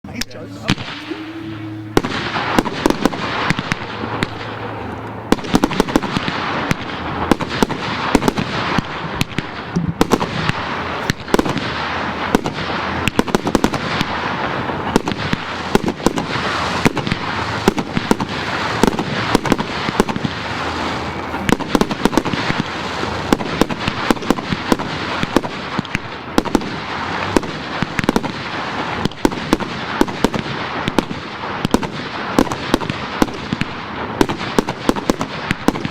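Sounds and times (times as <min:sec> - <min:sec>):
fireworks crackling and banging: 0:00.1 - 0:35.9.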